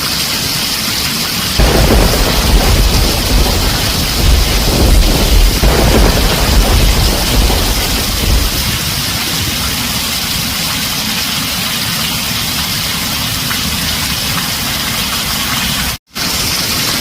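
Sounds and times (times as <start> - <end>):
heavy rain on a tin roof: 0.0 - 17.0
low thunder rumble: 1.6 - 10.6.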